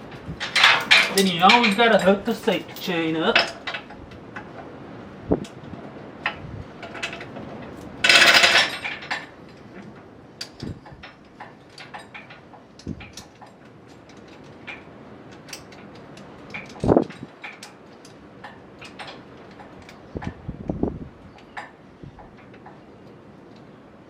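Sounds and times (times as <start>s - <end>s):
chain links rattling: 0.1s - 4.0s, 6.8s - 9.8s.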